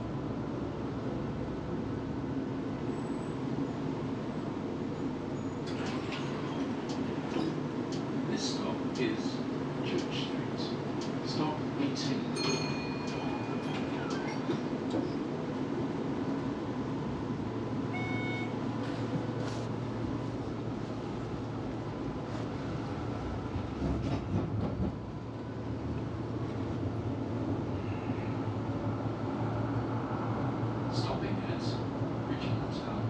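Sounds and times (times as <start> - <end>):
tram rumble on rails: 0.0 - 33.0
brief tone: 17.9 - 18.6.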